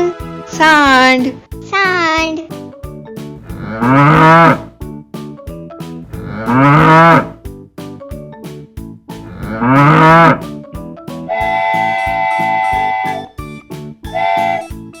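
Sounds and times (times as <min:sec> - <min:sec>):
light music with plucked notes: 0:00.0 - 0:15.0
bull mooing: 0:03.4 - 0:04.7, 0:06.1 - 0:07.4, 0:09.2 - 0:10.4.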